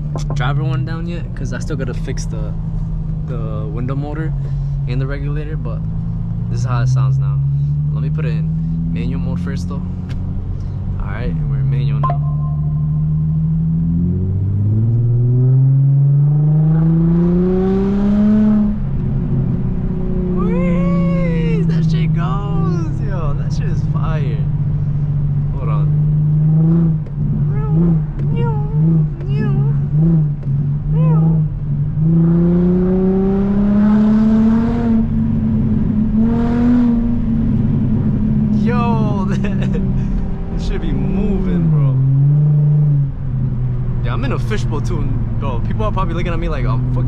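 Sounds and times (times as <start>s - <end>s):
car engine accelerating hard: 4.8s - 47.0s.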